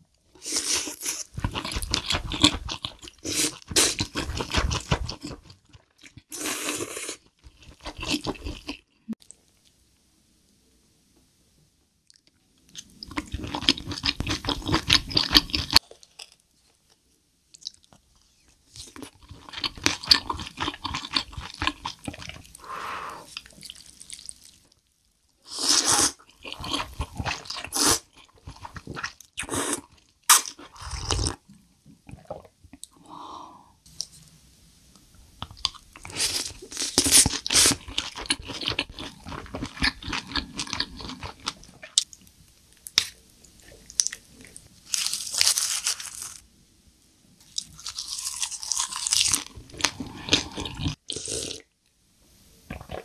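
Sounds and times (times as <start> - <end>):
person chewing: 0.4 - 9.2, 12.1 - 16.4, 18.8 - 24.6, 25.5 - 31.4, 35.4 - 42.2, 47.4 - 51.7, 52.7 - 53.0.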